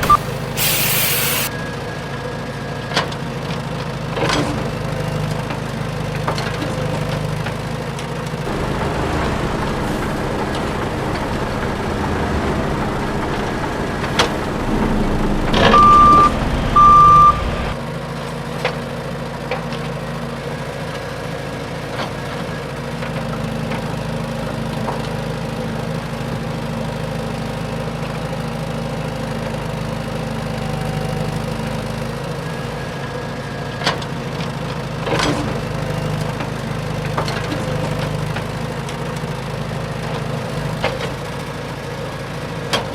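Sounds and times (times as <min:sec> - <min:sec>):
short loud beeps: 0:00.0 - 0:01.5, 0:15.5 - 0:17.8
toy truck mechanical hum: 0:00.0 - 0:01.6, 0:08.5 - 0:17.8.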